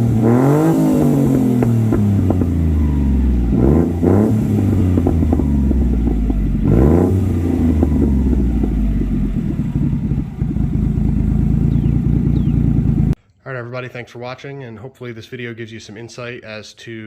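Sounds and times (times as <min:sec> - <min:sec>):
small engine idling and revving: 0:00.0 - 0:13.2.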